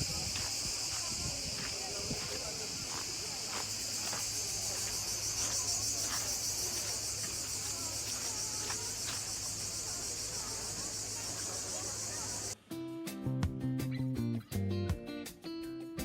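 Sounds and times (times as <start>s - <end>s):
cicadas chorus: 0.0s - 12.6s
music: 11.6s - 16.0s.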